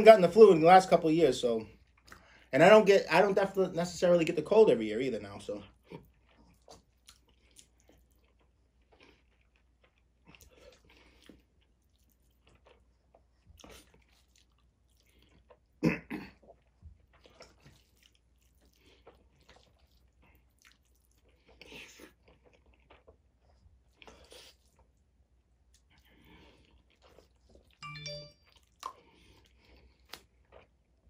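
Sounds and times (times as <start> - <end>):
man chewing food: 1.6 - 2.5, 5.4 - 31.0.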